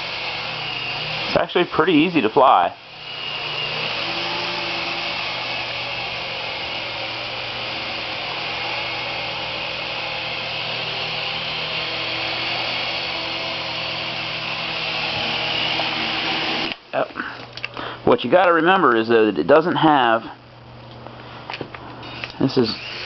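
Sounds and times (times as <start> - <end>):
toy helicopter motor whine: 0.0 - 16.8, 22.1 - 23.0.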